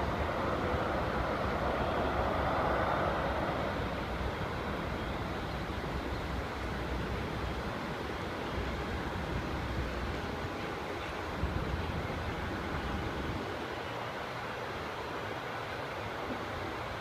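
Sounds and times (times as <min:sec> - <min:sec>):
jet engine roar: 0:00.0 - 0:06.6.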